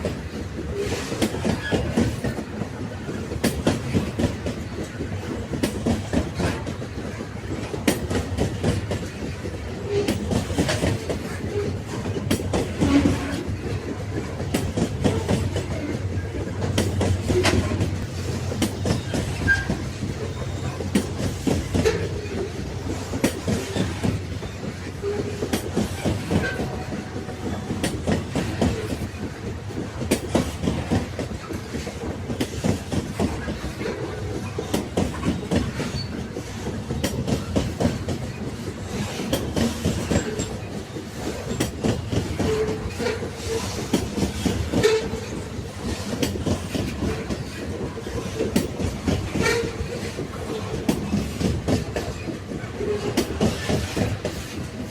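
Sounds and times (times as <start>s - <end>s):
railway wagons rumbling: 0.0s - 54.9s
wheels clacking over rail joints: 0.0s - 54.9s
wheel squeak: 18.8s - 21.0s, 34.3s - 36.3s.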